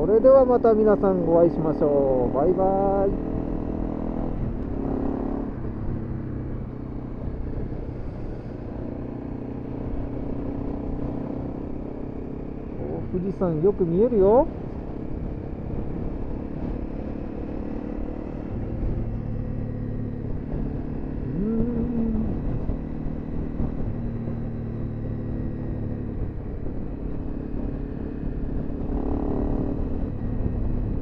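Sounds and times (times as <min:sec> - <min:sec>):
car engine and road hum: 0:00.0 - 0:31.0
rising and falling tone: 0:21.2 - 0:23.0.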